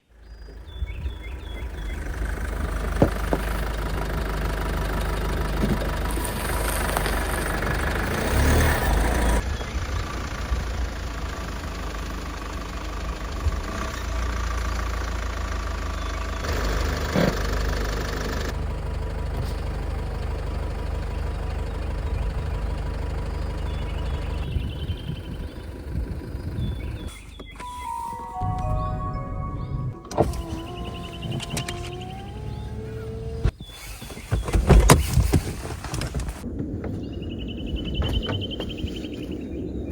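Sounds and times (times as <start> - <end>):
vehicle engine and road rumble: 0.0 - 27.7, 30.0 - 39.9.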